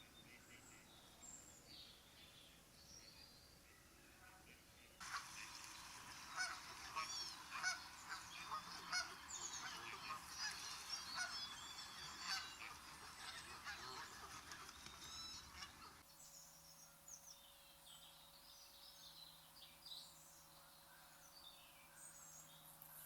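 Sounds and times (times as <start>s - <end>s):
birds honking and chirping: 5.0s - 16.0s.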